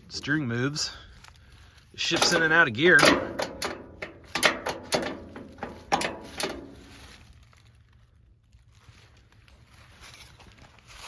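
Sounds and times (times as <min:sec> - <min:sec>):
metallic gearshift clunks: 0:02.2 - 0:06.9.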